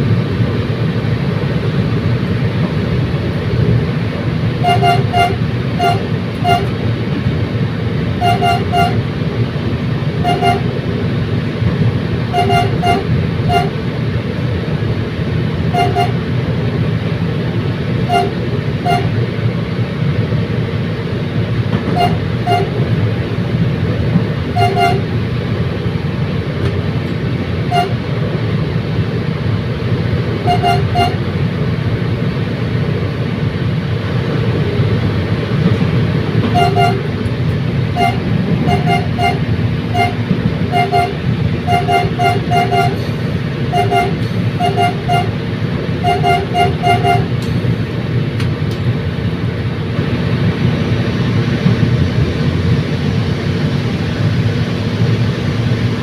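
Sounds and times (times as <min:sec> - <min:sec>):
train rumbling: 0:00.0 - 0:56.0
train horn toots: 0:04.6 - 0:06.8, 0:08.2 - 0:09.1, 0:10.2 - 0:10.8, 0:12.3 - 0:13.8, 0:15.7 - 0:16.3, 0:18.0 - 0:19.2, 0:21.9 - 0:22.9, 0:24.5 - 0:25.2, 0:27.6 - 0:28.1, 0:30.4 - 0:31.3, 0:36.4 - 0:37.3, 0:37.9 - 0:45.4, 0:46.0 - 0:47.5.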